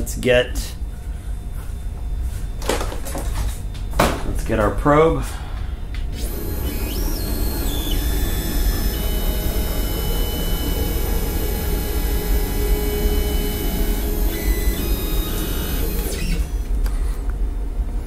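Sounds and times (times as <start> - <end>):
electric motor whining: 6.1 - 16.8.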